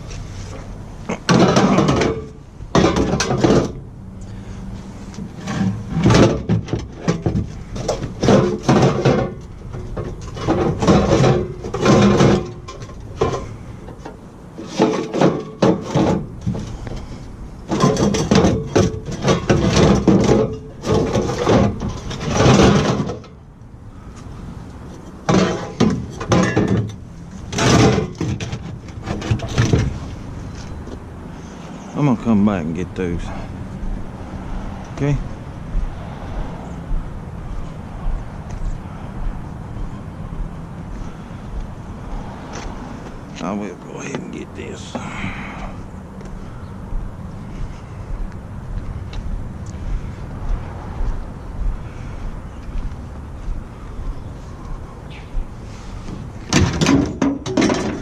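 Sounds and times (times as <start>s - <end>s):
objects clattering and knocking: 1.1s - 3.8s, 5.1s - 23.4s, 25.0s - 30.8s, 56.0s - 58.0s.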